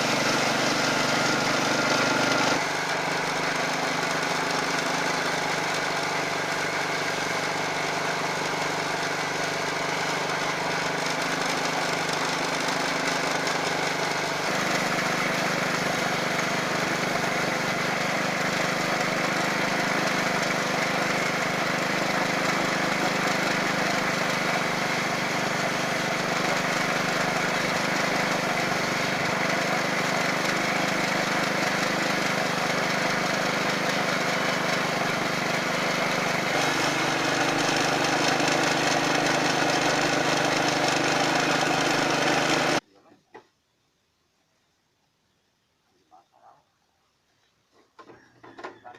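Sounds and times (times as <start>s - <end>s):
small engine running: 0.0s - 42.8s.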